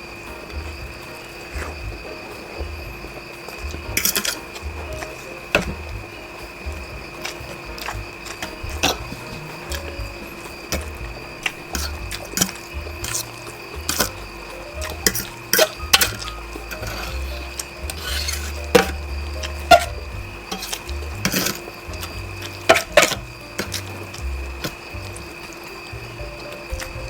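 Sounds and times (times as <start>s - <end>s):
quiet background music: 0.0s - 27.0s
cutlery scraping a plate: 14.9s - 24.7s.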